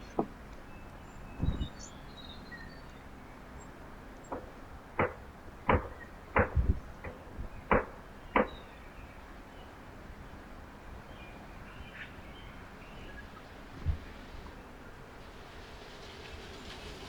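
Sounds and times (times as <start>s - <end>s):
sharp knocks and taps: 4.3s - 8.6s.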